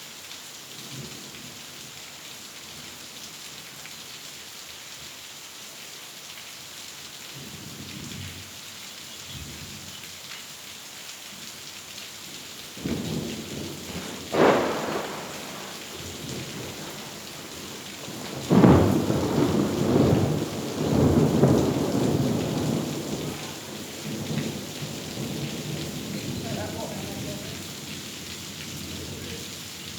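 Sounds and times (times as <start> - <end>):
steady rain: 0.0 - 29.9
thunder rumbling and cracking: 12.8 - 29.4.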